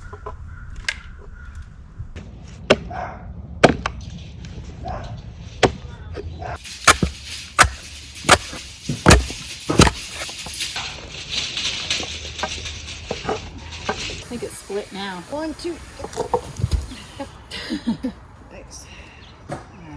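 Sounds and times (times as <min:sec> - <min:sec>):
sledgehammer striking steel wedge: 0:02.6 - 0:03.0, 0:03.6 - 0:04.0, 0:05.6 - 0:06.0, 0:06.6 - 0:11.0.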